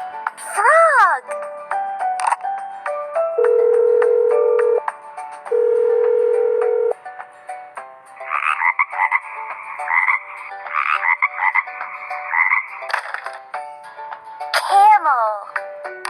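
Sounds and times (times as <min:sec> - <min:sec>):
light children's tune: 0:00.0 - 0:16.0
frog croaking: 0:08.2 - 0:12.8.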